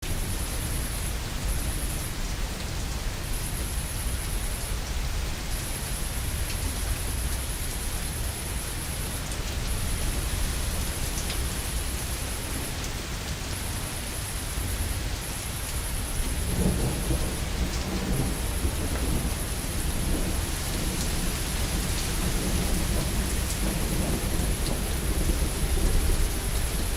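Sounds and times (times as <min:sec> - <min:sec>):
rain falling: 0:00.0 - 0:26.9
distant thunder rumbling: 0:15.0 - 0:26.9.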